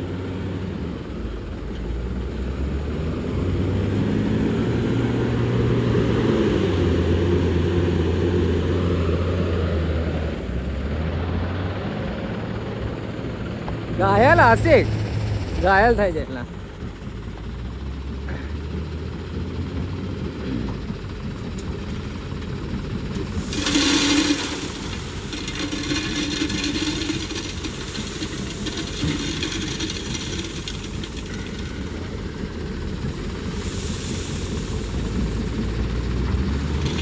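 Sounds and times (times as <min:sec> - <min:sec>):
diesel engine running: 0:00.0 - 0:37.0
loud rushing hiss: 0:23.2 - 0:36.2.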